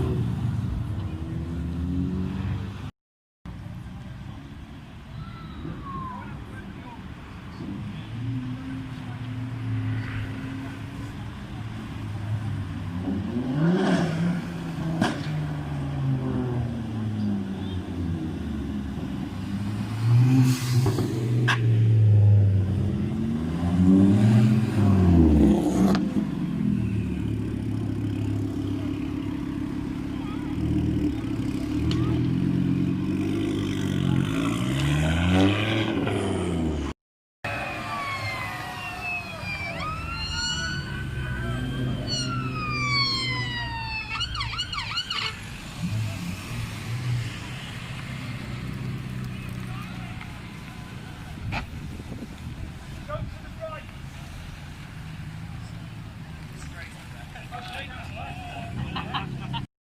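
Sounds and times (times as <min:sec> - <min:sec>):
police siren wailing and yelping: 0:37.5 - 0:45.4
car engine revving: 0:37.5 - 0:50.9.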